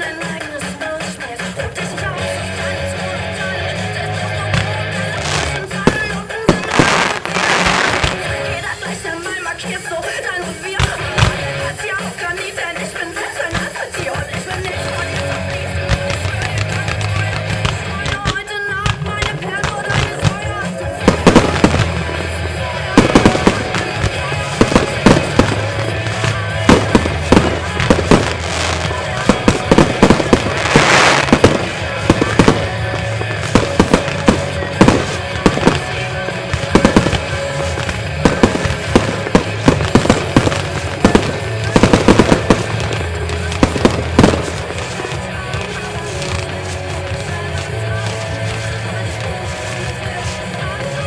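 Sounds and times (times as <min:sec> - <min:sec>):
fireworks bangs: 0:00.0 - 0:51.0
fireworks hissing and crackling: 0:00.0 - 0:51.0
music with steady bass: 0:00.0 - 0:51.0.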